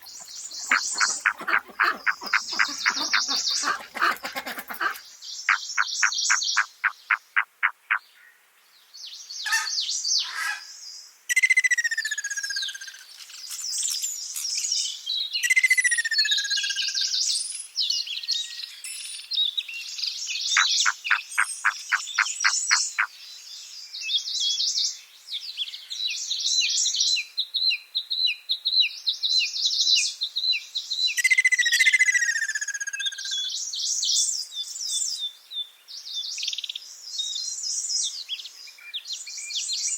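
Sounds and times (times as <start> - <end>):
rapid bird trills: 0.0 - 8.0, 20.6 - 23.1
songbirds singing: 0.0 - 39.9.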